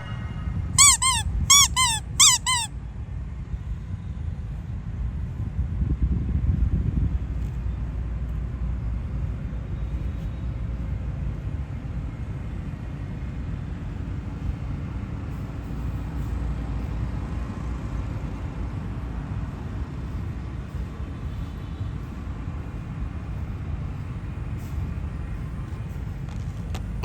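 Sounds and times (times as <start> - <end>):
outdoor low rumble: 0.0 - 12.5.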